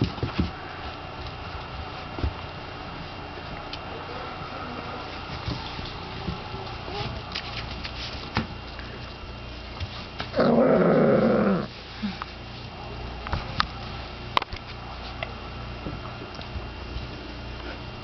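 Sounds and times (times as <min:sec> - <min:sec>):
puppy growling: 0:03.9 - 0:07.4, 0:10.3 - 0:11.8.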